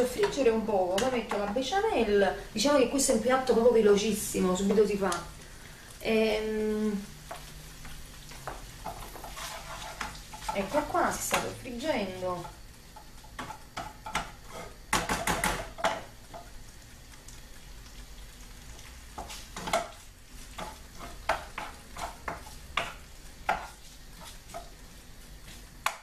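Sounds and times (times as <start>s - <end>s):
ham sizzling in oil: 0.0s - 26.0s
wooden spoon scraping a pan: 6.9s - 16.5s, 18.8s - 26.0s.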